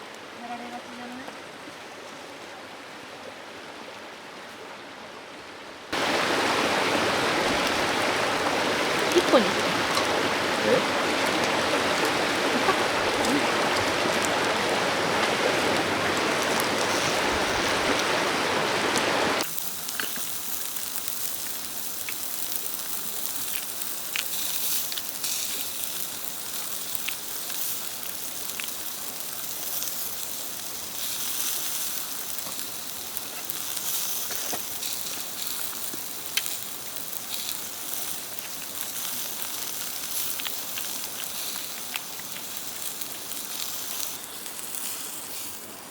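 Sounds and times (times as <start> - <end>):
river stream running: 0.0 - 45.9
meat sizzling over charcoal: 5.9 - 45.9.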